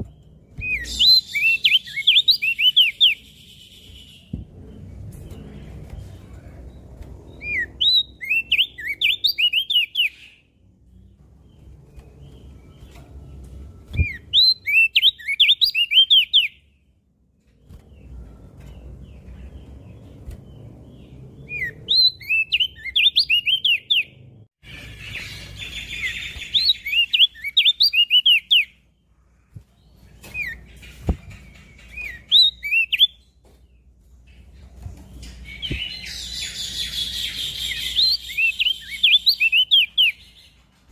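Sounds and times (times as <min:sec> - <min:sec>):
bird singing chirped phrases: 0:18.1 - 0:29.1.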